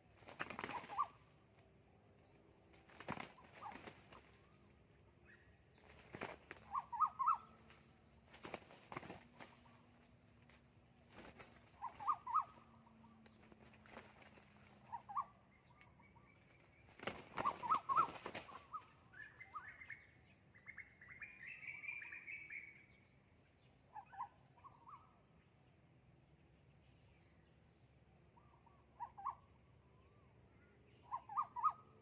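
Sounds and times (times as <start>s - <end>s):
wings flapping: 0.0s - 1.3s, 2.7s - 4.5s, 5.8s - 12.6s, 13.2s - 15.2s, 16.4s - 18.9s
junglefowl calling: 6.6s - 7.5s, 11.8s - 12.6s, 17.4s - 18.8s.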